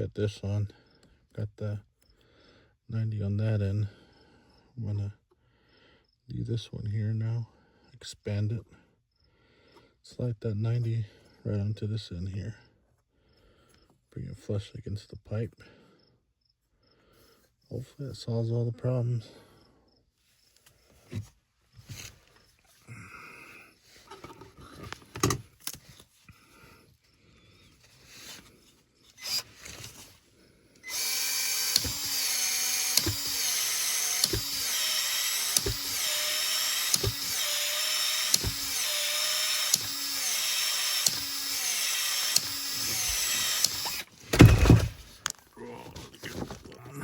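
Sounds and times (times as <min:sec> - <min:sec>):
expansion tool motor whine: 0:29.2 - 0:30.0, 0:30.8 - 0:45.1
tool head clicking: 0:30.8 - 0:45.4
loud thump: 0:44.3 - 0:45.1.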